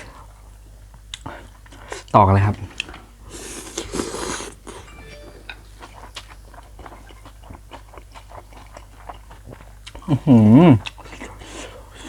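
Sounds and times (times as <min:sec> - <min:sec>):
chewing with wet mouth clicks: 0:07.2 - 0:10.1, 0:10.8 - 0:11.4.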